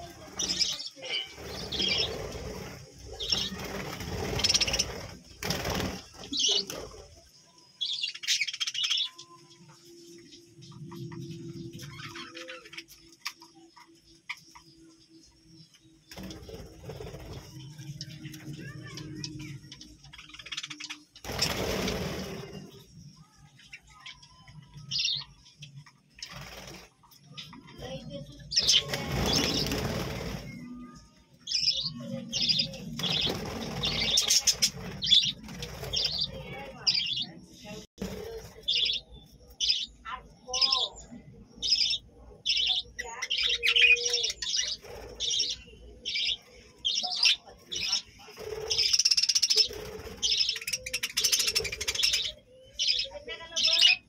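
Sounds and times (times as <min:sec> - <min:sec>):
budgerigars chirping and chattering: 0:00.0 - 0:30.6, 0:31.5 - 0:54.0
wings flapping: 0:00.1 - 0:07.2, 0:16.1 - 0:19.4, 0:20.6 - 0:22.9, 0:26.1 - 0:27.2, 0:28.5 - 0:30.8, 0:32.3 - 0:37.2, 0:38.0 - 0:39.0, 0:47.7 - 0:52.3.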